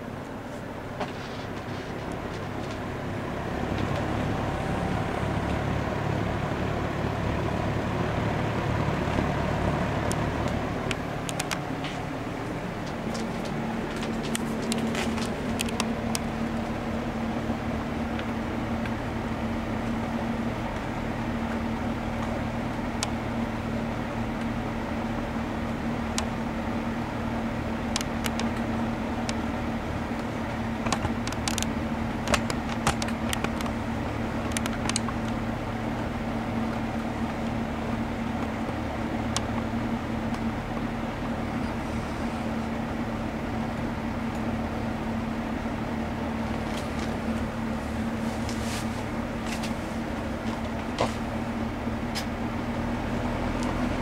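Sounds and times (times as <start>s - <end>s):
box fan running: 0.0s - 54.0s
light ticks: 23.0s - 23.2s.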